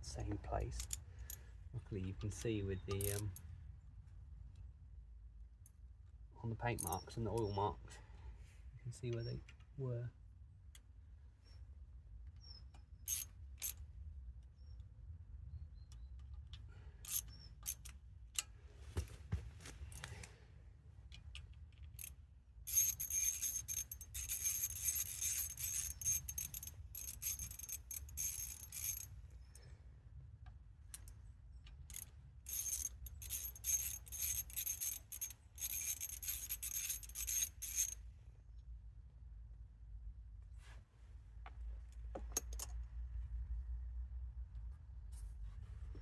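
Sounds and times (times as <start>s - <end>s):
metal tools clinking: 2.2s - 3.4s, 22.7s - 29.1s, 31.9s - 38.0s
ratchet spanner clicking: 2.9s - 3.4s, 13.1s - 13.8s, 17.0s - 18.5s, 22.7s - 29.1s, 31.7s - 38.0s.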